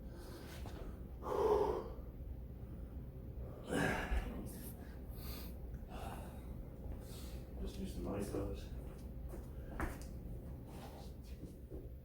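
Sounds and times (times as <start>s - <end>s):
man breathing out hard: 1.2s - 2.0s.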